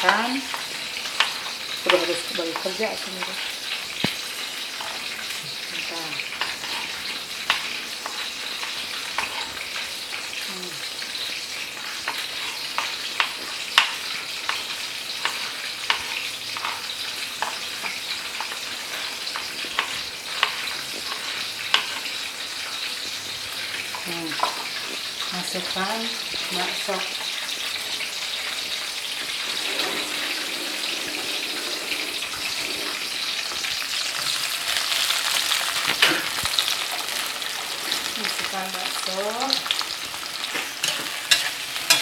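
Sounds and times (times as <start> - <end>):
vegetables sizzling in oil: 0.0 - 42.0.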